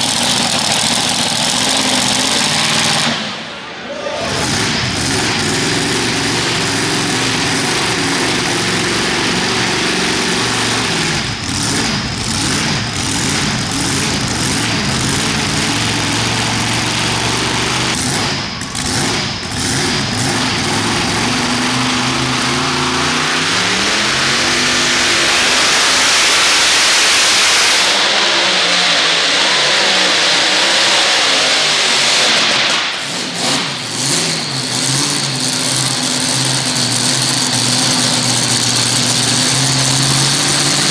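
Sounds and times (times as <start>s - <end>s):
tractor engine at high revs: 0.0s - 40.9s
loud hiss: 21.8s - 28.1s.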